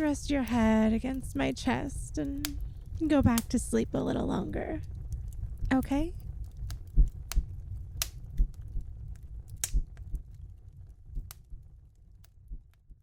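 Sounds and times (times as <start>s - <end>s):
low rumble of flames: 0.0s - 13.0s
wood fire crackling: 0.0s - 13.0s
sharp pops of fire: 2.1s - 3.6s, 4.5s - 13.0s.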